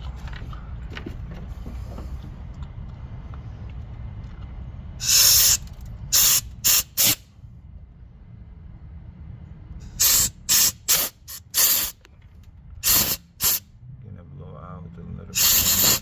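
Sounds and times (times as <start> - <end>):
compressed air blasts hissing: 5.0 - 7.2, 9.8 - 12.0, 12.8 - 13.6, 15.3 - 16.0.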